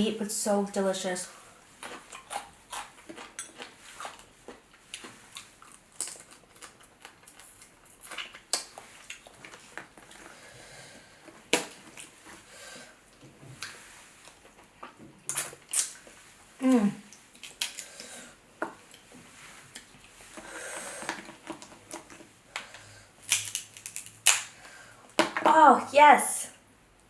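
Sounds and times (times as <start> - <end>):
chewing: 1.8 - 10.4
crab shells cracking: 5.0 - 10.3, 17.2 - 18.1, 20.4 - 25.4.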